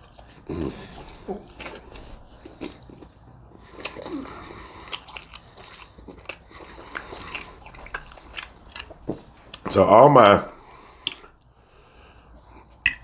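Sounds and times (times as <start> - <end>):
person chewing food: 0.0 - 13.0
mouth clicks and smacks: 4.8 - 10.4, 11.0 - 11.5, 12.6 - 13.0.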